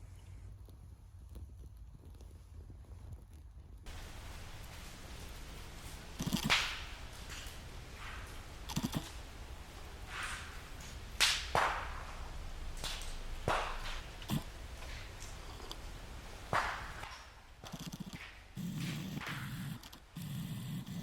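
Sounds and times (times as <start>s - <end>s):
blade chopping wood: 6.2s - 20.0s.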